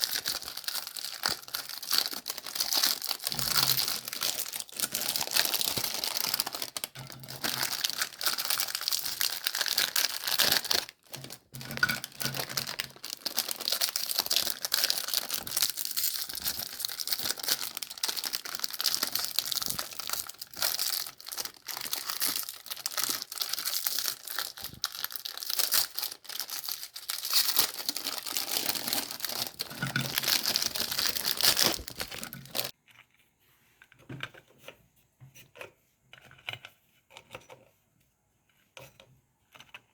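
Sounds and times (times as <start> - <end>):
meat grinder crunching cookies: 25.8 - 32.8.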